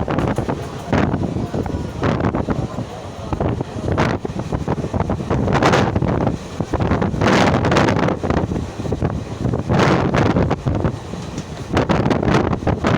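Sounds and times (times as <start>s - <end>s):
moving train rumble: 0.0s - 12.9s
wind buffeting microphone: 0.0s - 12.9s.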